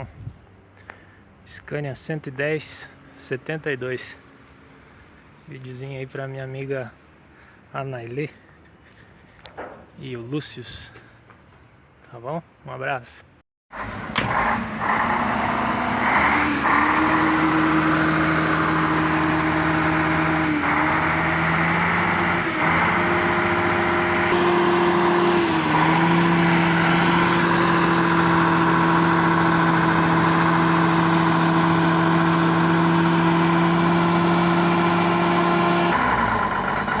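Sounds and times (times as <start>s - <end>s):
vehicle engine humming: 13.8s - 37.0s.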